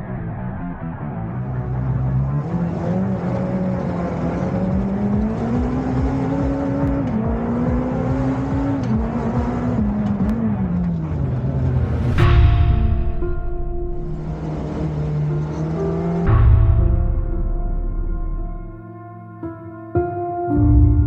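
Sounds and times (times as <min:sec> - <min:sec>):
rally car engine revving: 0:00.0 - 0:18.8.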